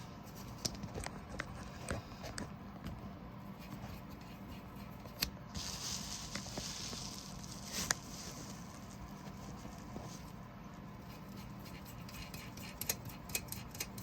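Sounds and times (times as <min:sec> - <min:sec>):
soft hiss: 0:05.5 - 0:10.4.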